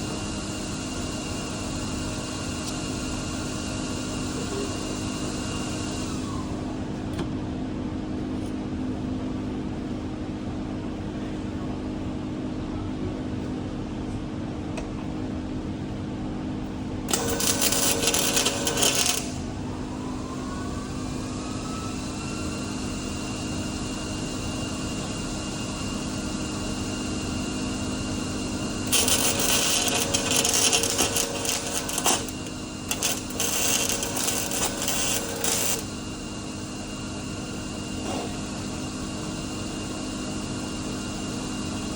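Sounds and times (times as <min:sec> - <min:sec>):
steady machine hum: 0:00.0 - 0:08.3, 0:13.8 - 0:41.9
arc welding crackling: 0:17.1 - 0:19.4, 0:28.7 - 0:36.1.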